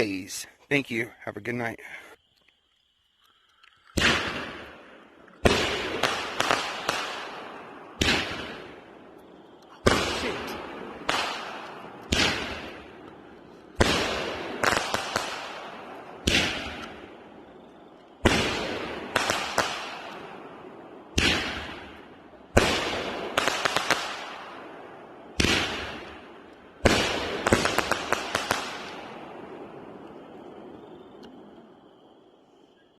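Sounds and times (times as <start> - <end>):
sharp firework cracks: 3.2 - 31.8
firework bangs with rumble: 4.0 - 4.8, 5.4 - 8.9, 9.8 - 13.0, 13.8 - 17.1, 18.2 - 20.1, 21.1 - 24.3, 25.2 - 29.7.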